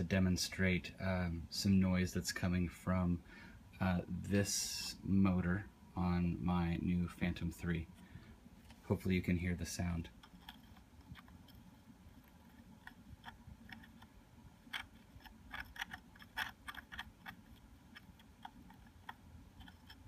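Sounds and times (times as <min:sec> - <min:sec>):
drone motor scratchy clicks: 0:10.0 - 0:20.0.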